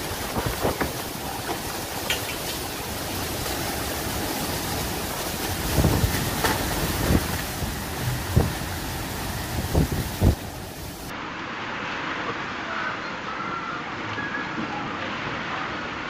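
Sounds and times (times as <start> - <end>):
storm wind buffeting microphone: 0.0 - 11.1.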